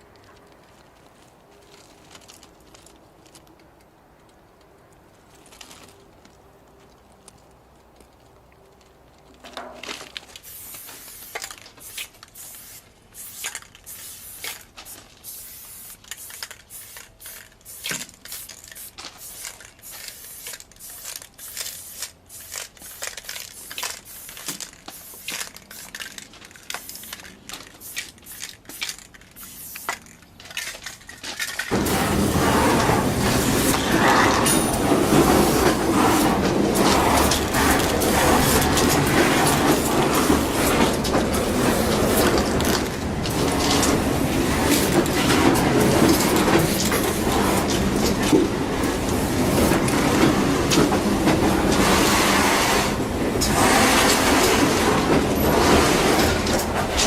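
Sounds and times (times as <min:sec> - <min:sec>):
spray paint can hissing: 0:10.3 - 0:54.8
train rumbling and clattering: 0:31.7 - 0:57.0.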